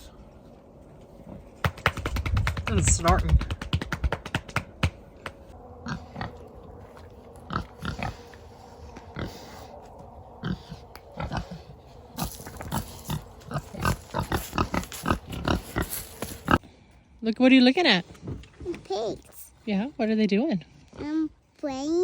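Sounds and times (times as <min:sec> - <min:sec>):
pigs snorting: 0:05.8 - 0:16.6.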